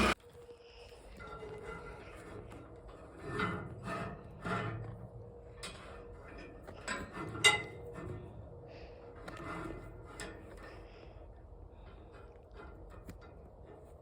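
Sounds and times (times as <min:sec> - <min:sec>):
metallic clanks and knocks: 0:01.1 - 0:08.4.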